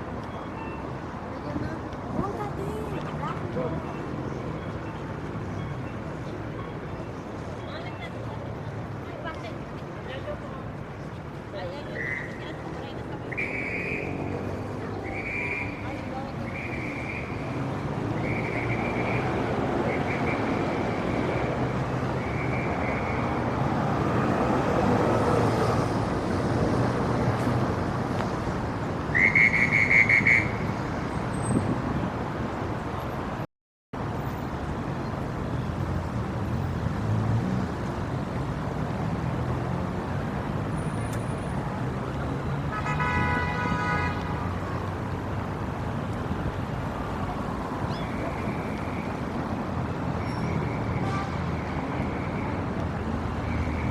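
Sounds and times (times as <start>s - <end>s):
city street traffic: 0.0s - 53.9s
car horn honk: 42.7s - 44.2s.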